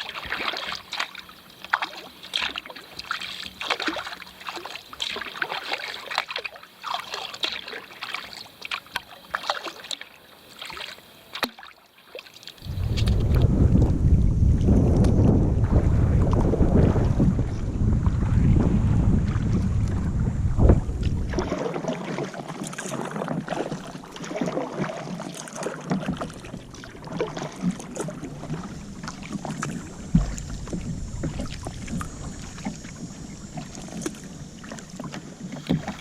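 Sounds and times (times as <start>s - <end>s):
water splashing around kayak: 0.0s - 36.0s
wind buffeting microphone: 12.6s - 21.6s, 27.2s - 36.0s
paddle knocking on hull: 23.0s - 32.9s, 33.5s - 36.0s.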